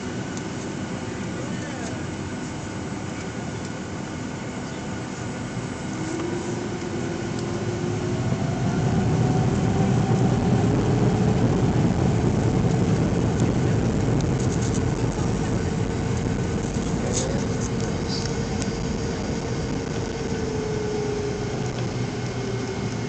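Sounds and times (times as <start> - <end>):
jet engine rumble in cabin: 0.0 - 23.0
rising engine whine: 0.0 - 23.0.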